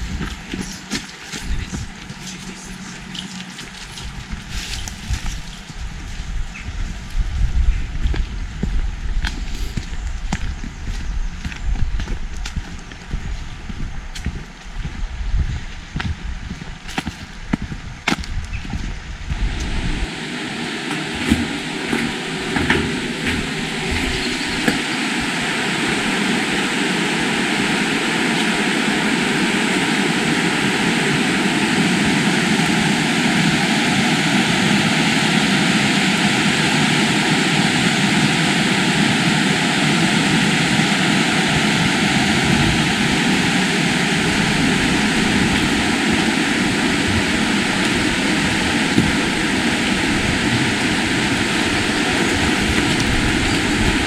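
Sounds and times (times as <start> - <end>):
footsteps: 0.0 - 7.2, 8.0 - 25.0
fast-flowing river water: 19.4 - 54.0.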